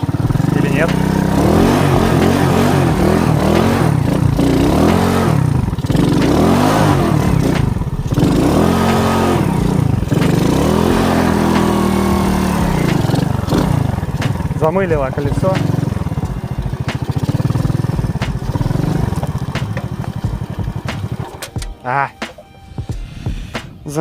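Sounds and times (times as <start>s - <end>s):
moped engine revving: 0.0s - 24.0s.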